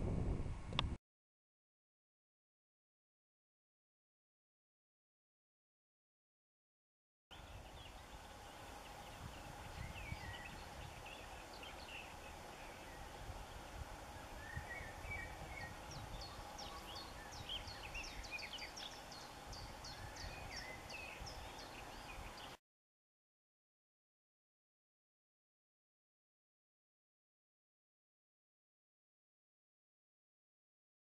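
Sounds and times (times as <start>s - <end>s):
wind rumble on microphone: 0.0s - 1.0s, 7.3s - 22.6s
small birds chirping and singing: 7.3s - 22.6s.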